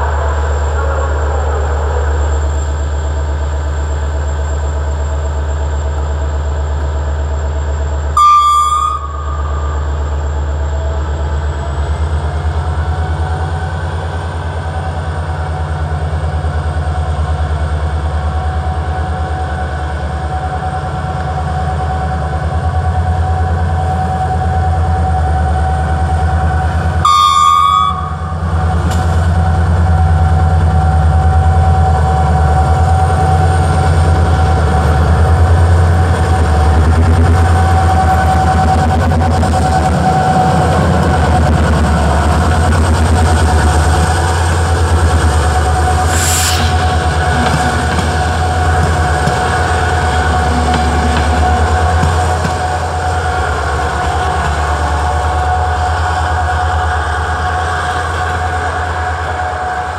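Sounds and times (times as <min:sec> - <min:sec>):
railway engine rumbling: 0:00.0 - 0:59.9
train horn blasts: 0:08.1 - 0:09.9, 0:27.0 - 0:28.6.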